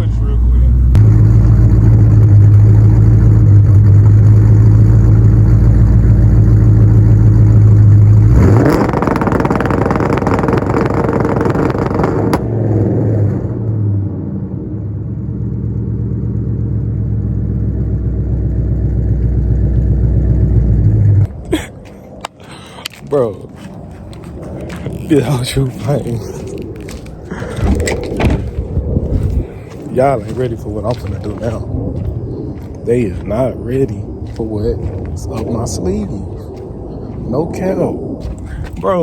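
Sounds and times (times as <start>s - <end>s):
car engine revving: 0.0s - 21.3s
rough burst of engine noise: 0.0s - 21.6s.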